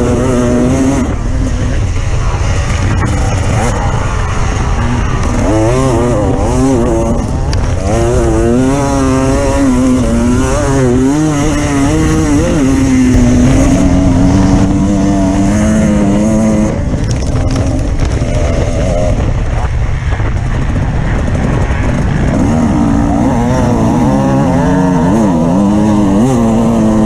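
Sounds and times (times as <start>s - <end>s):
off-road vehicle engine revving: 7.8s - 17.0s.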